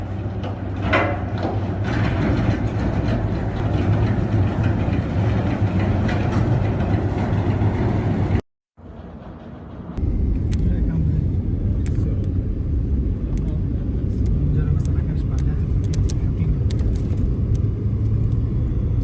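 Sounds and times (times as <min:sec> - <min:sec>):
heavy engine droning: 0:00.0 - 0:15.4, 0:16.1 - 0:19.0
clicks and knocks: 0:00.2 - 0:07.8.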